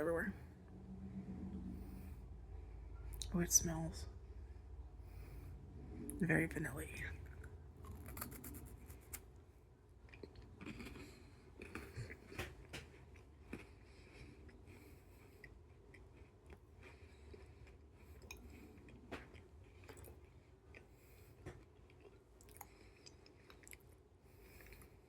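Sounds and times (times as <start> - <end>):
chewing crispy wafer: 7.2 - 25.0.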